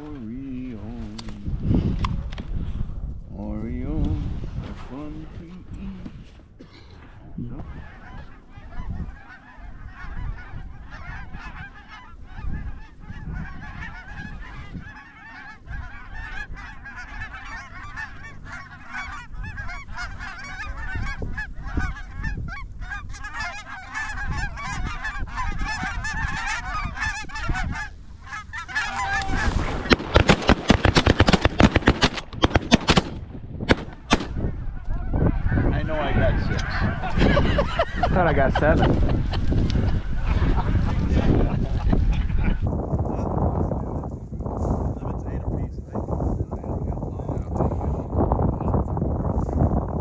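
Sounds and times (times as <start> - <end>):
geese honking: 4.9 - 50.0
loud sharp cracks: 29.2 - 34.4.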